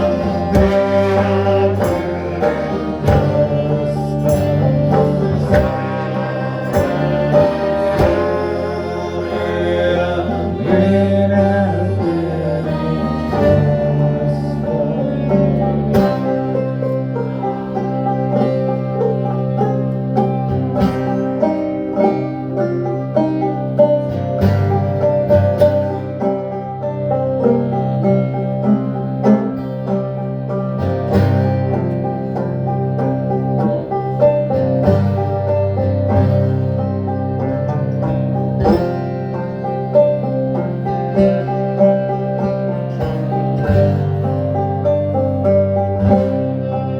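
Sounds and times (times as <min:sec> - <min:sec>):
band playing music: 0:00.0 - 0:46.9
plucked string instruments: 0:00.0 - 0:46.9
steady bass: 0:00.0 - 0:46.9.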